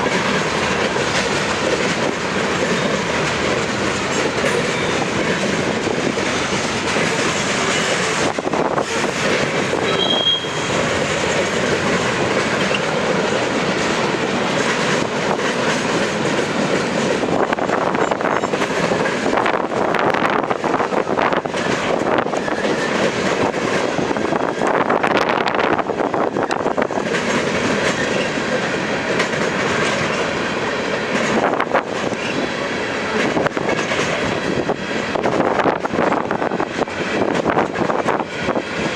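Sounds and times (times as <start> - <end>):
train wheels clicking over rail joints: 0.0 - 38.9
high wheel squeal: 9.8 - 10.8.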